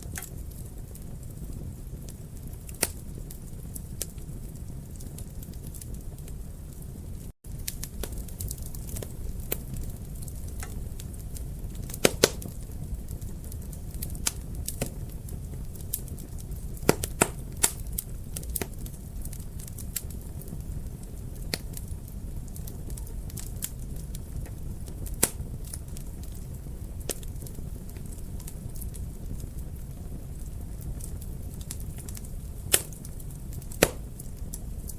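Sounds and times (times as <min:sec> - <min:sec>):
fire snapping and popping: 0:00.0 - 0:34.9
low rumble of flames: 0:00.0 - 0:34.9.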